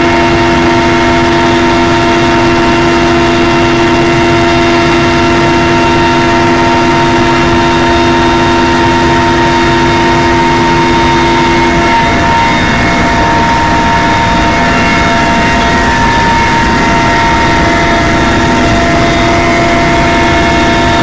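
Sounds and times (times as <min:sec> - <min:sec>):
helicopter engine and rotor noise: 0:00.0 - 0:21.0
steady whining tones: 0:00.0 - 0:21.0.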